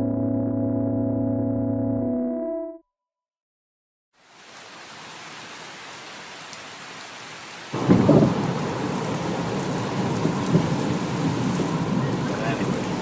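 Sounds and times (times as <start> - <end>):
rain hiss: 4.2 - 13.0
thunder rumble: 7.8 - 13.0.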